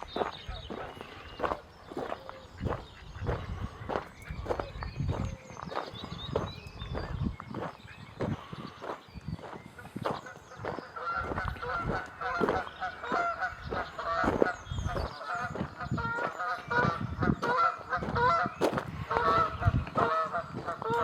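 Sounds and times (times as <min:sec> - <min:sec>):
geese honking: 0:00.0 - 0:04.7, 0:09.8 - 0:21.0.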